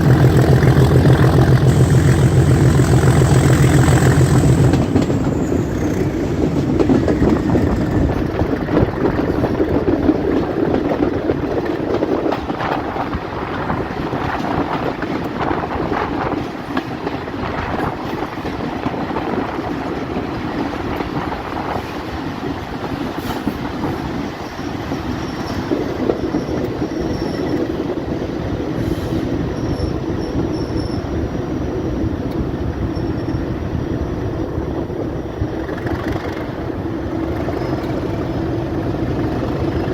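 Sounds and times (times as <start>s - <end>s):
wheels clattering over rails: 0.0s - 28.0s
train rumbling on track: 0.0s - 39.9s
faint high wheel squeal: 24.5s - 28.0s, 28.8s - 32.0s, 32.8s - 34.3s.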